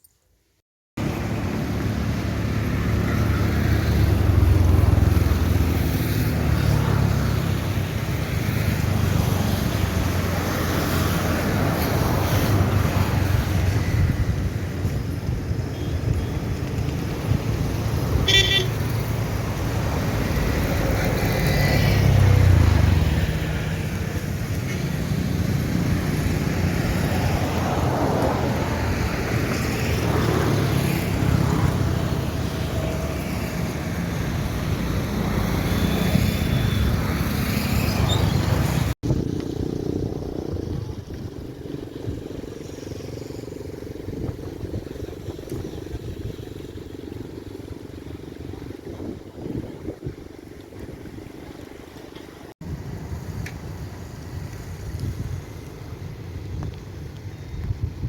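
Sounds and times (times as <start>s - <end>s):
road traffic passing: 1.0s - 58.0s
vehicle horn toot: 18.2s - 18.8s.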